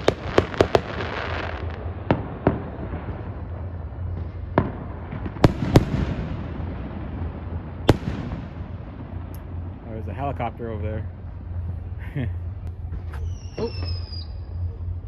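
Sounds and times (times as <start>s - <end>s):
firecracker bangs: 0.0s - 10.5s
crackling hiss: 0.0s - 15.0s
low rumble: 0.0s - 15.0s.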